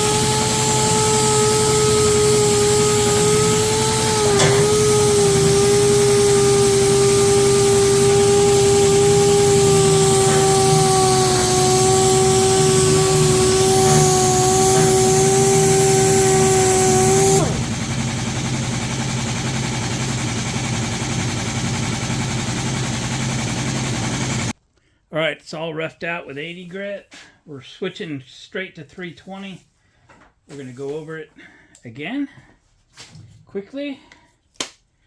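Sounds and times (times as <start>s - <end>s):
power sander whining: 0.0s - 24.6s.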